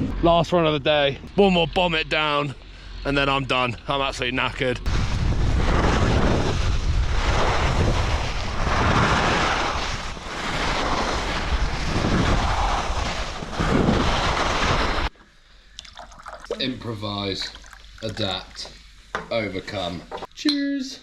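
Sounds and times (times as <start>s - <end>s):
wind rushing over microphone: 4.8s - 15.1s.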